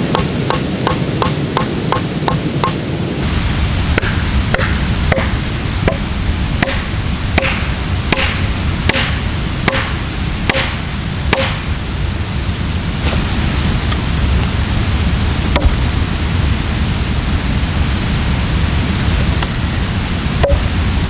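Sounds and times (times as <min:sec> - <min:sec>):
low rushing noise: 0:00.0 - 0:21.0
axe chopping into log: 0:06.6 - 0:09.9, 0:10.5 - 0:11.6.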